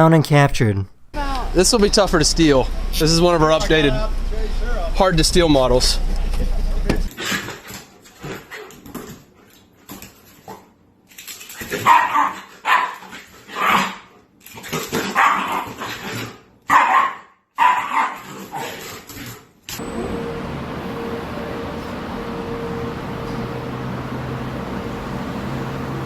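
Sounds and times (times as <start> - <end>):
dog barking: 11.8 - 14.1, 15.0 - 15.9, 16.7 - 18.7.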